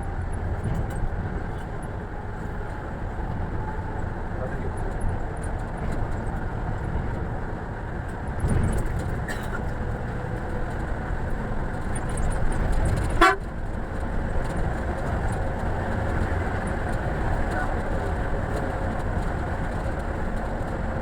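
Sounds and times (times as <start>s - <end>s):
coach engine rumble: 0.0s - 21.0s
horn toot: 13.2s - 13.4s.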